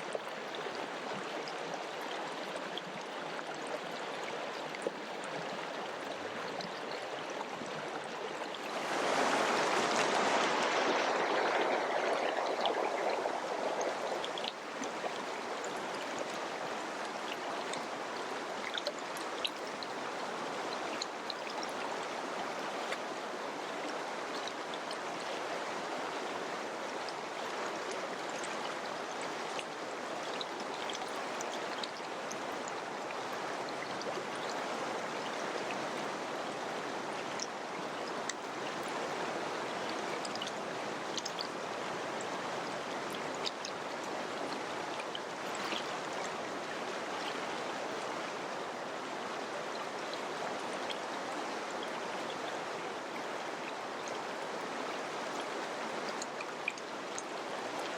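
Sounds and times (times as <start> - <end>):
mountain river rushing: 0.0 - 57.9
small water splashes: 0.0 - 57.9.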